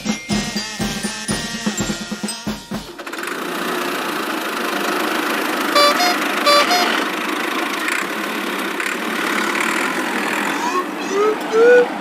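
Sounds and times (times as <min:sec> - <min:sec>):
vehicle engine running: 0:02.9 - 0:11.1
two-note horn beeps: 0:05.8 - 0:07.1.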